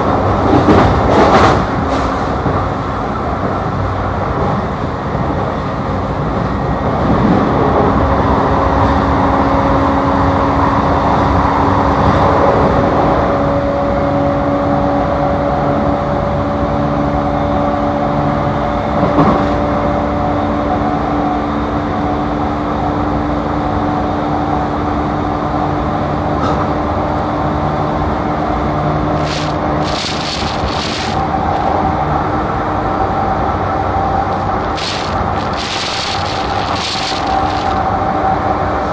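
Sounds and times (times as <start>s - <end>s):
wheels rumbling on rail: 0.0s - 38.9s
train motor hum: 26.4s - 38.9s.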